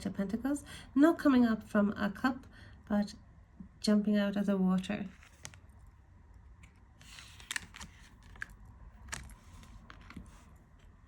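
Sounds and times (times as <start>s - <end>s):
cards sliding: 5.1s - 5.7s, 6.6s - 10.9s
cards tapping and clicking: 5.2s - 5.6s, 6.6s - 10.5s.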